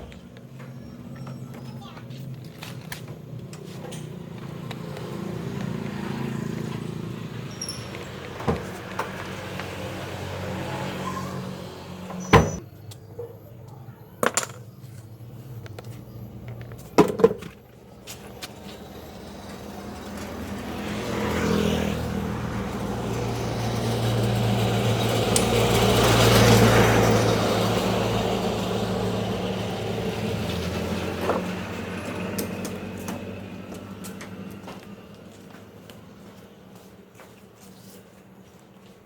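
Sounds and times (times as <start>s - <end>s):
vehicle passing by: 3.2s - 12.6s, 17.8s - 38.9s.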